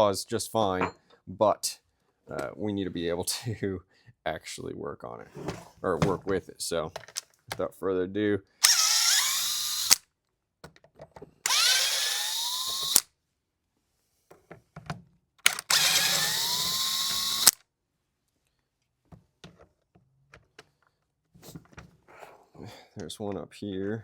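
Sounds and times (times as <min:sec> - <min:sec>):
power drill motor spinning: 0:08.6 - 0:10.0, 0:11.5 - 0:13.1, 0:15.5 - 0:17.6.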